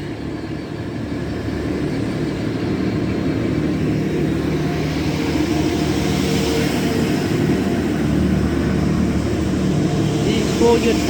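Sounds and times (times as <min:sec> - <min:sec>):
diesel train engine drone: 0:00.0 - 0:11.0.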